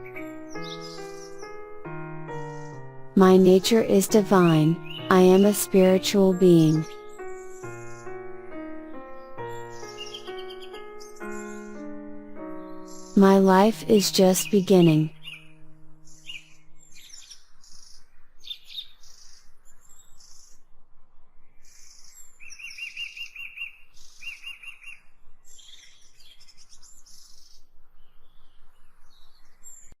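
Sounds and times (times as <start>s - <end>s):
songbirds chirping: 0.0s - 30.0s
rapid trilled bird call: 9.3s - 11.8s.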